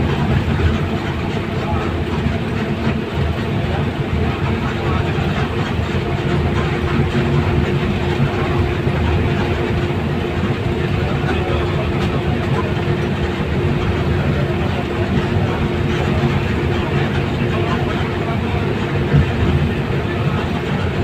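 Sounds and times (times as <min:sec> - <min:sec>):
constant hum: 0:00.0 - 0:21.0
moving vehicle rumble: 0:00.0 - 0:21.0.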